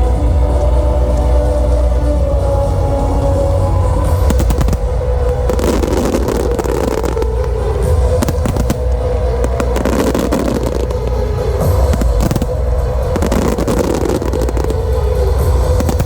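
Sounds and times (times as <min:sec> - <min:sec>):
music: 0:00.0 - 0:16.0
fireworks crackling and banging: 0:03.7 - 0:16.0.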